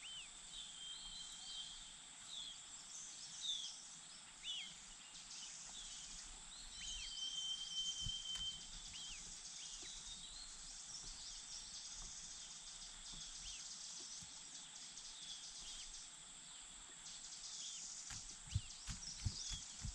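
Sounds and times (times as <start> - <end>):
soft low thumps: 18.1 - 19.9.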